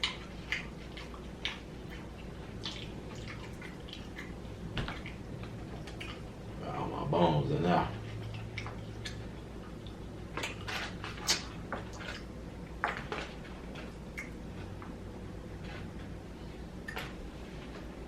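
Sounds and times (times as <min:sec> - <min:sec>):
chewing mouth clicks and smacks: 0:00.0 - 0:06.3, 0:08.1 - 0:12.3
low steady hum: 0:00.0 - 0:18.0.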